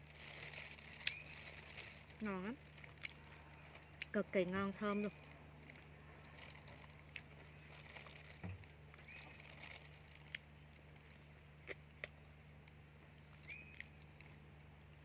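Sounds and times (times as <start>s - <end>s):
faint hum and hiss: 0.0s - 15.0s
bird chirps: 1.0s - 1.4s, 13.3s - 14.1s.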